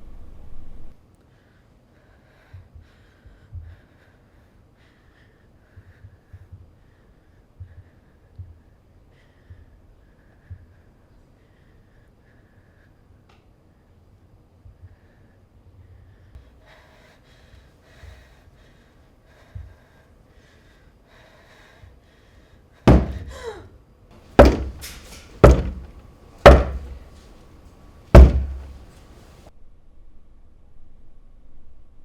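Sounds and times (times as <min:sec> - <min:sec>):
heavy thumps with ringing tail: 0:22.9 - 0:23.4, 0:24.4 - 0:27.2, 0:28.2 - 0:28.9.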